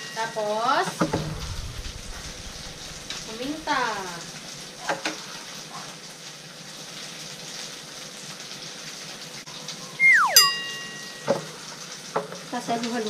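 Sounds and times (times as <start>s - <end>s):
food sizzling in a pan: 0.2s - 9.8s.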